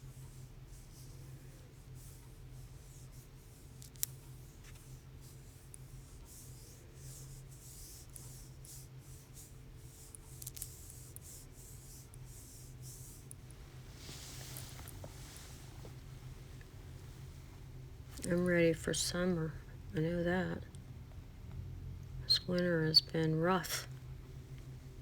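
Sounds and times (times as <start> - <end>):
scratchy painting strokes: 0.0 - 16.1
low steady hum: 0.0 - 25.0.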